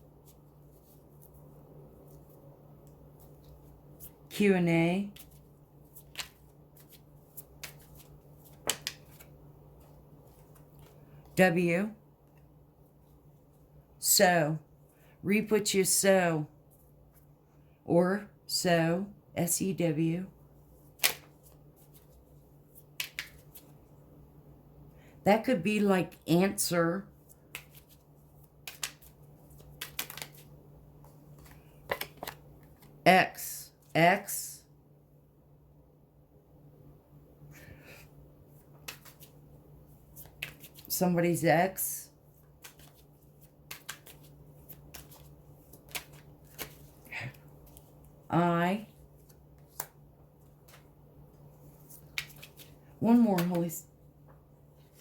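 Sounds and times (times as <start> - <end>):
faint steady hum: 0.0 - 55.0
cards clicking and rustling: 5.1 - 11.0, 21.0 - 22.2, 22.8 - 23.8, 27.2 - 33.0, 38.7 - 39.4, 40.0 - 40.9, 42.4 - 48.1, 49.2 - 50.9, 51.6 - 53.7.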